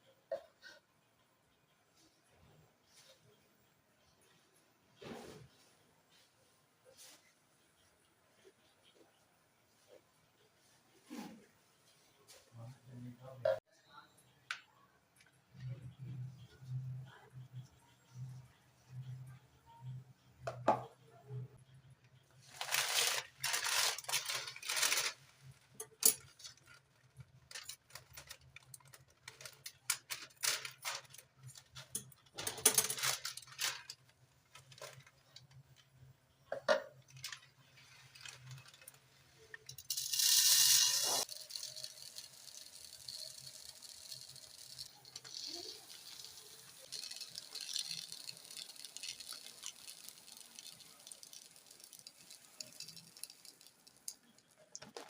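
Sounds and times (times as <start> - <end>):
household items clicking and knocking: 22.5 - 55.0.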